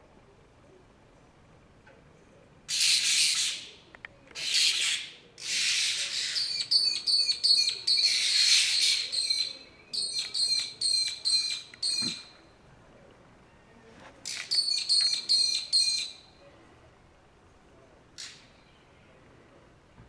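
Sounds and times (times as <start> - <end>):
birds scolding alarm calls: 2.7 - 3.8, 4.4 - 12.4, 14.2 - 16.3.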